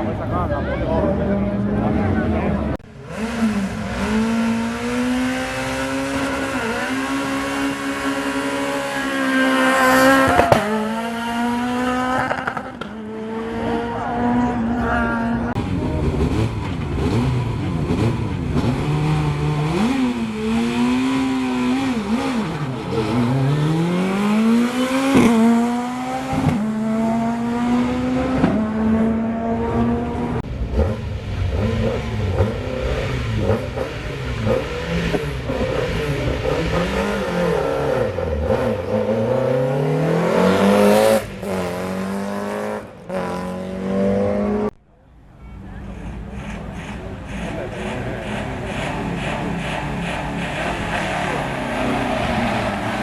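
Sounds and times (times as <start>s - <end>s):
car accelerating away: 0.0s - 44.8s, 45.7s - 53.0s
rally car engine high revs: 1.3s - 44.8s, 45.8s - 53.0s.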